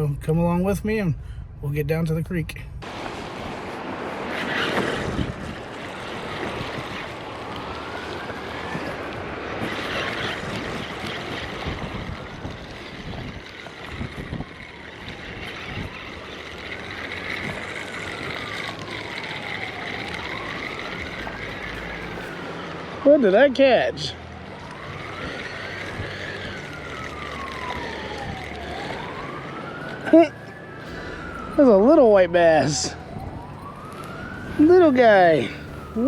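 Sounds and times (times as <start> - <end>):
steady rushing background noise: 1.8 - 36.0
siren wailing: 3.8 - 36.0.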